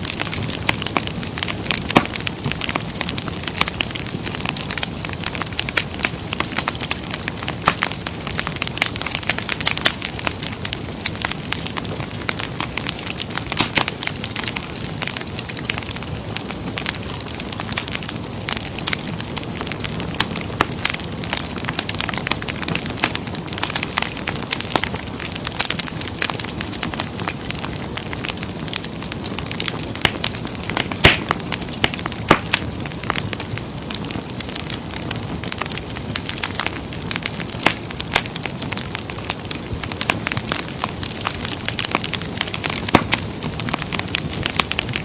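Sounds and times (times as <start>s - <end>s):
steady fire hiss: 0.0s - 45.0s
wood fire crackling: 0.0s - 45.0s.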